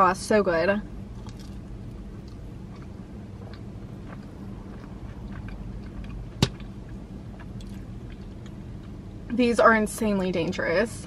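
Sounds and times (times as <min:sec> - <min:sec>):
low steady hum: 0:00.0 - 0:11.0
person chewing: 0:01.1 - 0:09.0.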